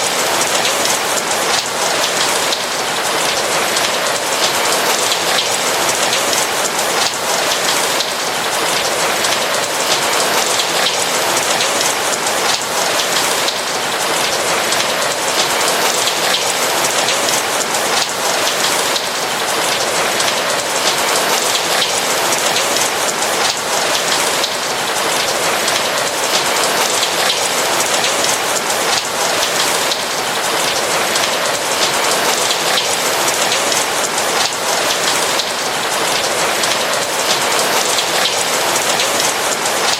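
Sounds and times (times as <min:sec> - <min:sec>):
rain patter on a roof: 0:00.0 - 0:39.9.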